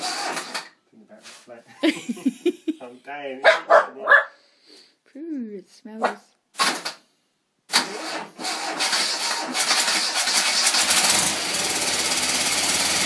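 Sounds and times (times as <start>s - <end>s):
small engine cranking and running: 0.0s - 0.7s, 7.7s - 13.0s.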